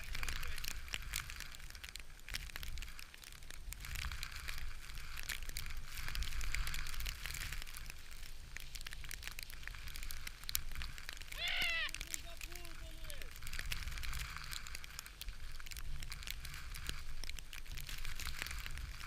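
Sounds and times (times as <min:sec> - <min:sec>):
crackling and snapping: 0:00.0 - 0:19.0.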